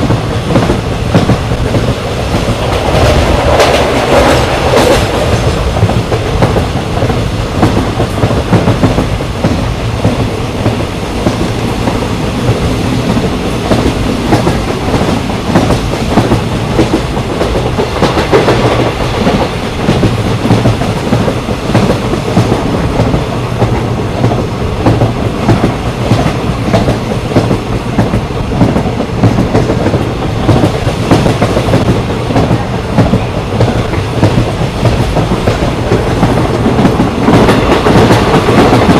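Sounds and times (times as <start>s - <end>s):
train coaches rumbling: 0.0s - 38.9s.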